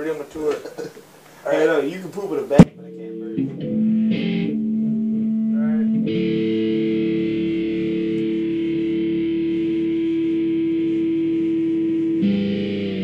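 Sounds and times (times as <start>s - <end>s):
distorted electric guitar: 2.6s - 13.0s.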